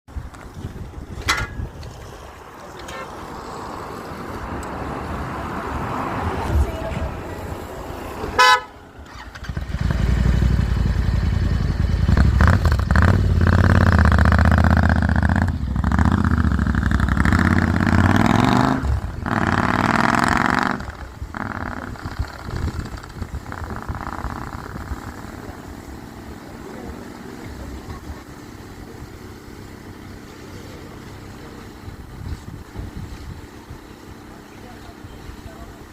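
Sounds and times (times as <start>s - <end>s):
horn toot: 2.8s - 3.3s, 8.3s - 9.2s
motorcycle engine revving: 8.3s - 35.9s.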